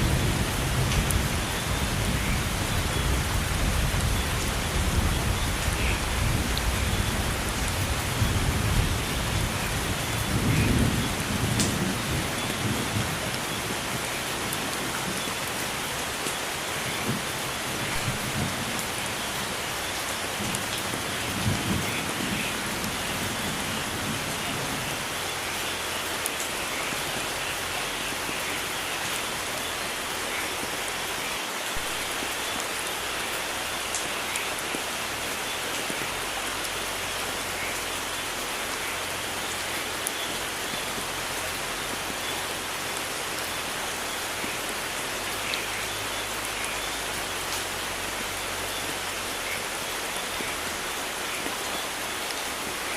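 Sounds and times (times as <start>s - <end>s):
heavy rain on foliage: 0.0s - 52.9s
raindrop clicks: 11.5s - 11.8s.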